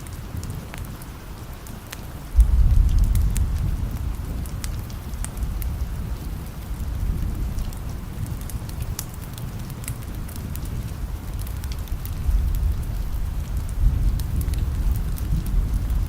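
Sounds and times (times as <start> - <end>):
steady rain: 0.0 - 16.0
wood fire crackling: 0.0 - 16.0
distant thunder rumble: 2.3 - 8.9, 10.1 - 16.0.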